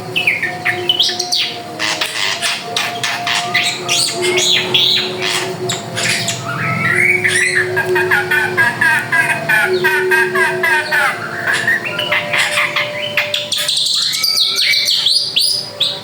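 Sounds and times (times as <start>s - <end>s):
bird singing harsh varied calls: 0.0s - 16.0s.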